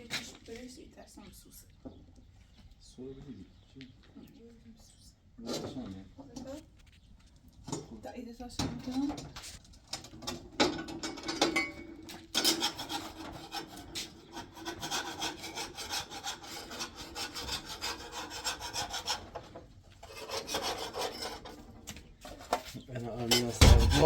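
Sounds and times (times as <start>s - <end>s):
rasping rubbing strokes: 12.6s - 19.4s, 20.0s - 21.6s, 23.6s - 24.0s.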